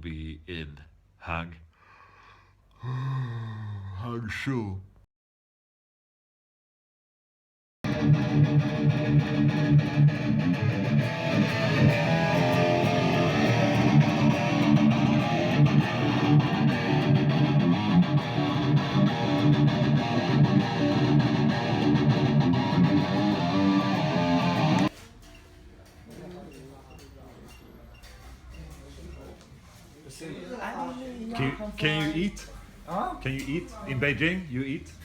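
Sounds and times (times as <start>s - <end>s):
electric guitar music: 7.9s - 24.9s.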